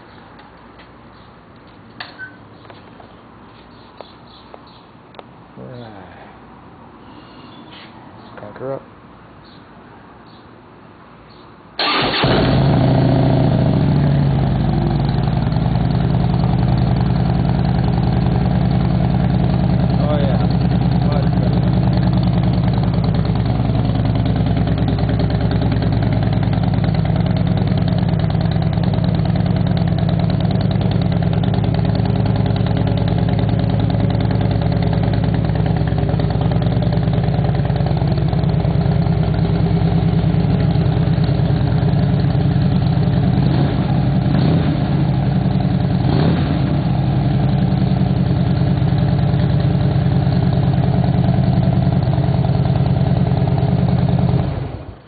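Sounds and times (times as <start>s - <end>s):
motorcycle idling: 11.8s - 55.0s.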